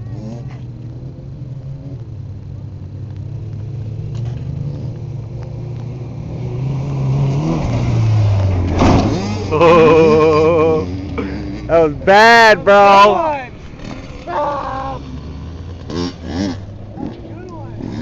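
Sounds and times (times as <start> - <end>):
truck engine running: 7.9 - 18.0.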